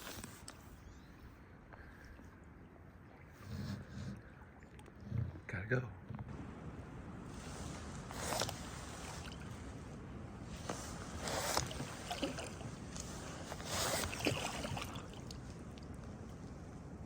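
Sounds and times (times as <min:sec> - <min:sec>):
paddle splashing in water: 0:07.3 - 0:09.8, 0:10.4 - 0:15.9
water drips and trickles: 0:10.7 - 0:16.6.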